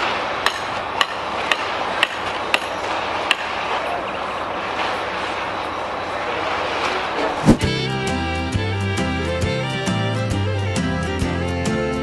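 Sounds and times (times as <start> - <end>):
job site noise: 0.0 - 8.6.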